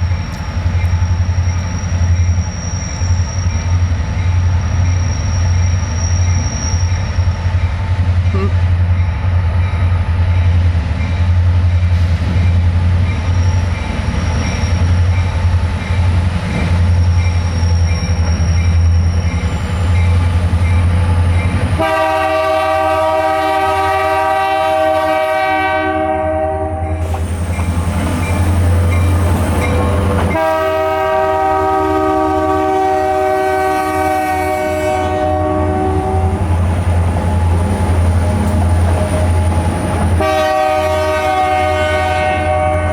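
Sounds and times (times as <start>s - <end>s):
diesel locomotive engine rumbling: 0.0s - 42.9s
locomotive air horn blasts: 21.8s - 27.1s, 30.2s - 36.5s, 40.2s - 42.9s.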